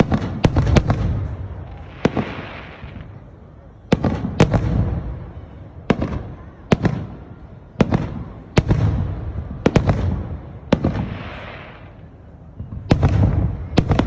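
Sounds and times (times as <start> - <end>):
firework hiss: 0.0 - 3.2, 10.7 - 12.1
fireworks bursting: 0.0 - 14.0
rolling rumble of echo: 0.0 - 14.0.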